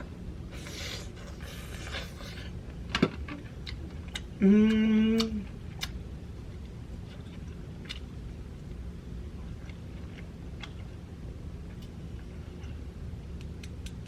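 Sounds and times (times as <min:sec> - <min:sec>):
mouth clicks and smacks eating: 0:03.6 - 0:06.0, 0:13.4 - 0:14.0
woman humming: 0:04.4 - 0:05.5.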